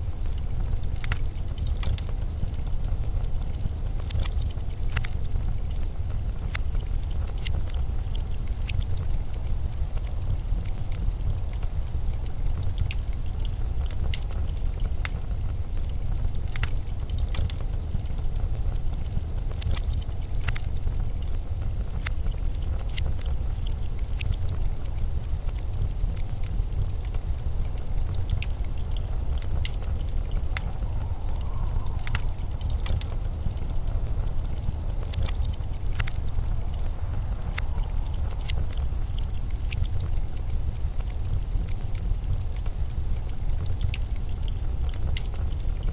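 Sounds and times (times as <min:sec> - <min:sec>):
faint high clicks and crackles: 0:00.0 - 0:45.9
blizzard wind rumbling: 0:20.1 - 0:45.9
faint wind whistle: 0:30.2 - 0:35.0.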